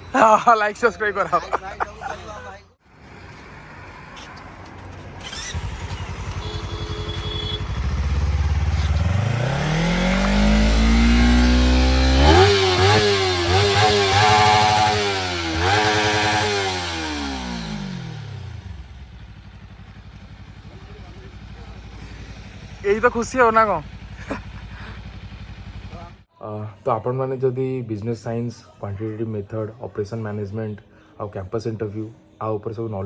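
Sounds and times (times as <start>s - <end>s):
motorcycle passing by: 3.0s - 26.3s.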